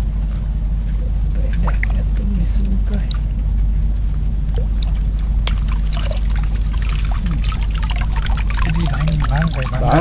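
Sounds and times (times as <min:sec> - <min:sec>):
steady low rumble: 0:00.0 - 0:10.0
water pouring and trickling: 0:04.6 - 0:10.0.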